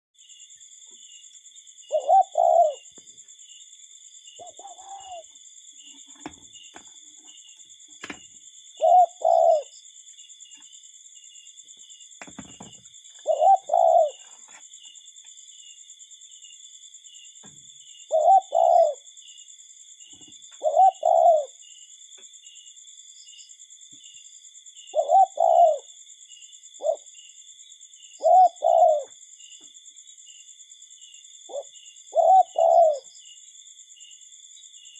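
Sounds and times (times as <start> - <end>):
cuckoo calling: 1.9 - 3.0, 4.4 - 6.4, 8.0 - 9.8, 12.2 - 14.5, 18.1 - 19.0, 20.6 - 21.6, 25.0 - 25.9, 28.2 - 29.2, 31.5 - 33.1.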